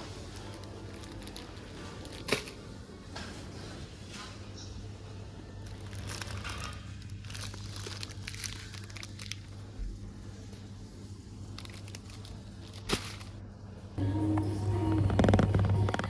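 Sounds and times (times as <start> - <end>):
crinkling and rustling: 0.0 - 4.9, 5.6 - 13.5
steady low hum: 0.0 - 16.0.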